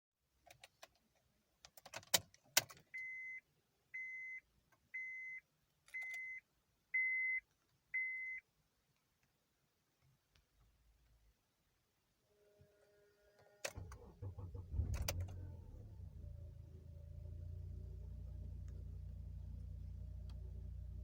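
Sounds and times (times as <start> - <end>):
car warning chime beeping: 2.9 - 3.4, 4.0 - 4.4, 5.0 - 5.4, 6.0 - 6.4, 7.0 - 7.4, 8.0 - 8.4.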